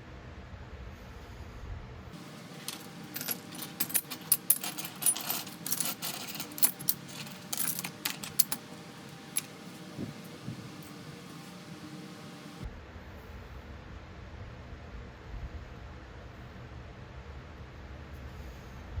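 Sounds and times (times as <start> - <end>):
small metal pieces clinking: 2.2 - 12.6.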